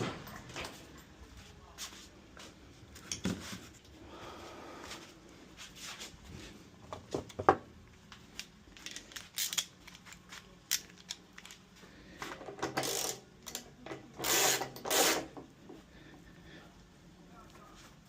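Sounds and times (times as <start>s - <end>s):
tools clicking and knocking: 6.9s - 15.5s
metal parts rattling: 8.4s - 11.6s, 12.4s - 15.3s.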